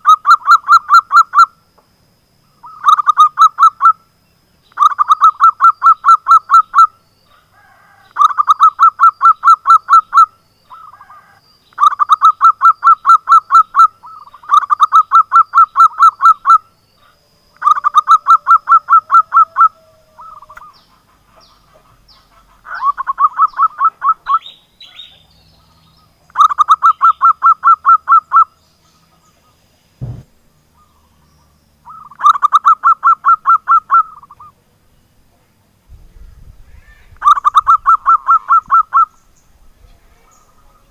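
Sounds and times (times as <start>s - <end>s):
dove calling in staccato bursts: 0.0s - 1.7s, 2.5s - 35.7s, 37.2s - 39.5s
low thump: 30.0s - 30.3s.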